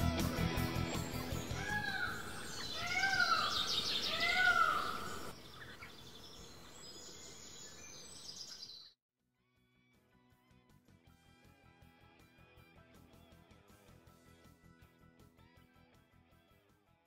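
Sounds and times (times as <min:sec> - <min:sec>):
bird calls rising and falling: 0:00.6 - 0:09.0
high bird chirping: 0:00.8 - 0:09.0.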